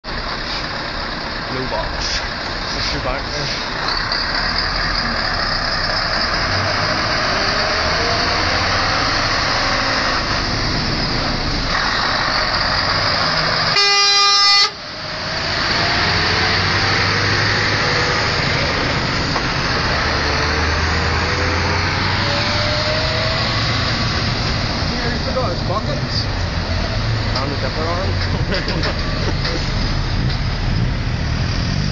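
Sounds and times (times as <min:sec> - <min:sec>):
truck diesel engine under load: 0:00.0 - 0:31.9
air horn blast: 0:13.7 - 0:14.8.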